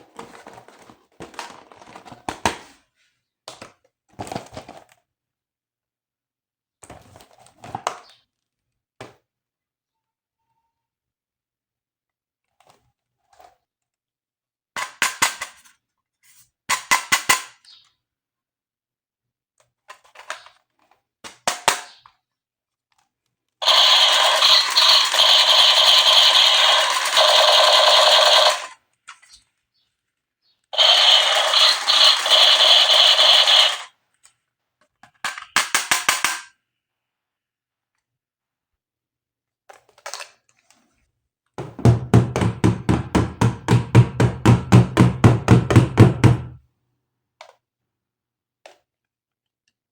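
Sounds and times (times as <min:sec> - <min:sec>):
toy gun rattling bursts: 0:23.6 - 0:28.8, 0:30.8 - 0:33.9, 0:35.3 - 0:36.5.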